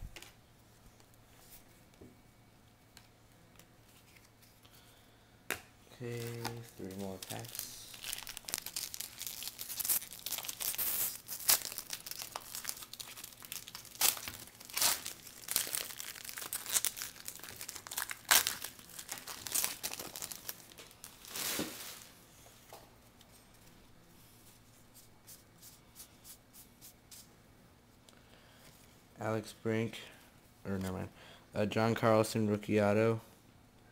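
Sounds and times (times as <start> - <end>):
plastic wrapper crinkling and ripping: 6.1 - 22.1.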